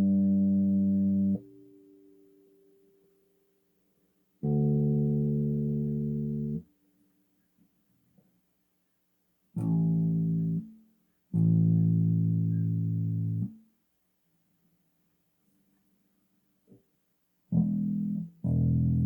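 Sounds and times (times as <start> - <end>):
electric bass low notes: 0.0 - 1.4, 11.4 - 13.5, 17.6 - 19.0.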